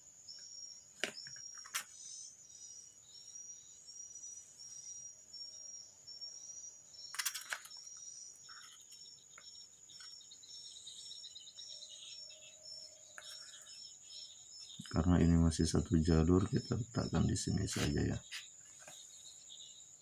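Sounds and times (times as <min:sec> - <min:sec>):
insect chirping trill: 0:00.0 - 0:20.0
sharp clicks: 0:07.1 - 0:07.9.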